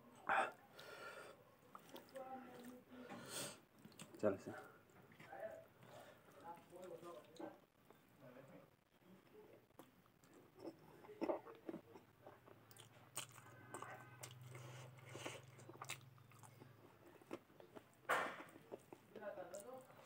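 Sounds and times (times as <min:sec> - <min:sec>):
wet chewing and crunching: 0:01.6 - 0:02.8, 0:03.7 - 0:08.0, 0:09.5 - 0:20.0.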